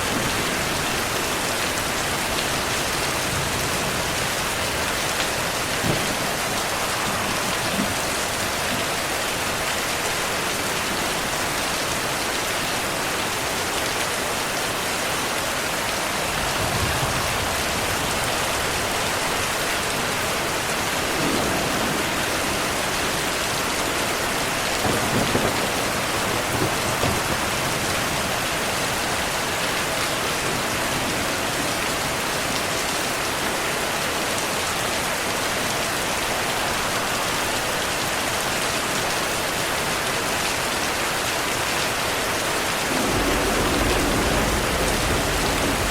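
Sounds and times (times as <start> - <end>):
distant thunder rumbling: 0.0 - 9.0, 20.7 - 29.0, 42.7 - 45.9
steady rain: 0.0 - 45.9.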